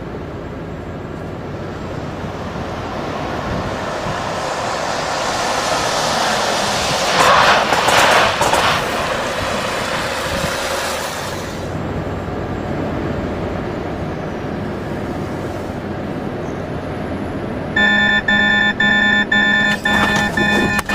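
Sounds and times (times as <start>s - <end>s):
heavy vehicle running: 0.0s - 20.9s
hiss: 4.9s - 11.8s
rapid electronic warning beep: 17.8s - 20.9s.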